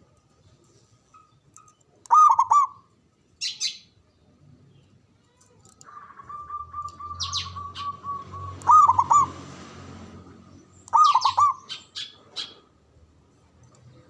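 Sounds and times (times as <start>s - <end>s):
dove cooing: 2.1s - 2.8s, 5.8s - 9.4s, 10.9s - 12.6s.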